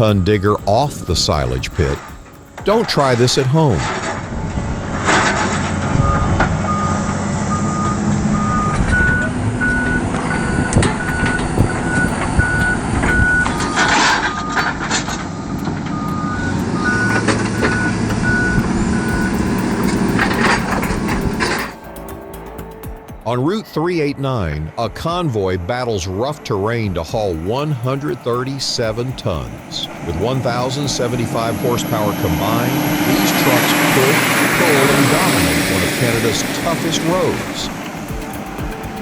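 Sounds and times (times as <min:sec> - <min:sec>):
two-tone reversing alarm beeping: 0:00.0 - 0:23.3, 0:27.2 - 0:39.0
engine running: 0:03.8 - 0:23.1, 0:27.2 - 0:39.0.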